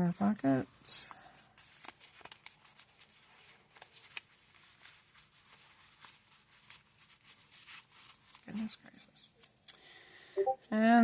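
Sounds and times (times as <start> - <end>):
paper rustling: 1.3 - 9.5.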